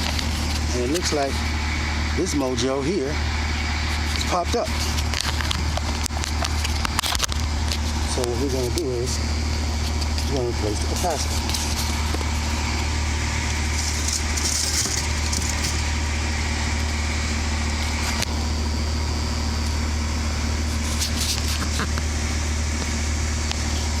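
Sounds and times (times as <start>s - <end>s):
rustling or scraping noises: 0.0s - 1.5s, 3.8s - 9.0s, 9.8s - 12.9s, 13.6s - 16.0s, 20.5s - 22.0s
low mechanical hum: 0.0s - 24.0s.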